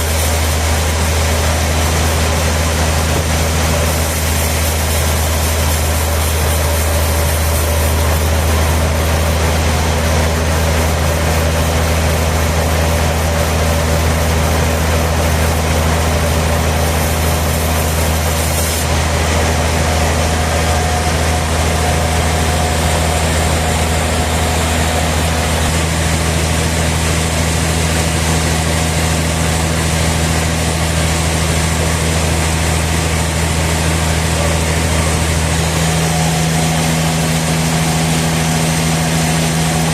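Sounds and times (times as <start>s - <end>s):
motor hum: 0.0s - 39.9s
mechanical noise: 16.7s - 39.9s.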